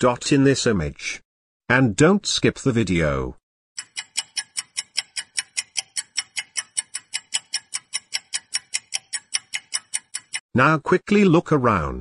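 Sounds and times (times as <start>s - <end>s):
rapid clock-like ticking: 3.8s - 10.4s.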